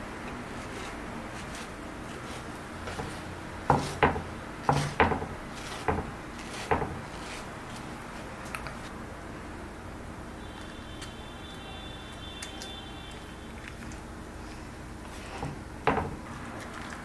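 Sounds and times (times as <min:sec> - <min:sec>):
sharp wooden knocks: 0:02.9 - 0:07.1, 0:15.4 - 0:16.3.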